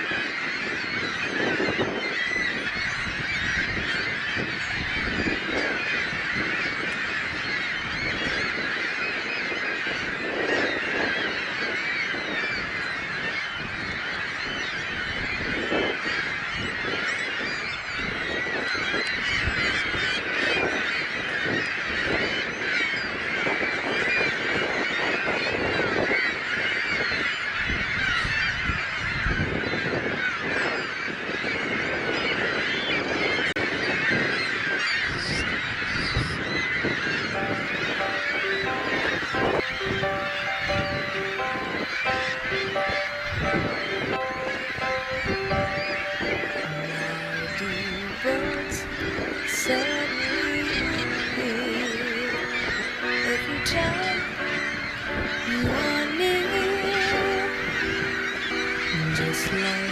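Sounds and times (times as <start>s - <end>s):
flock of birds honking: 0.0s - 59.9s.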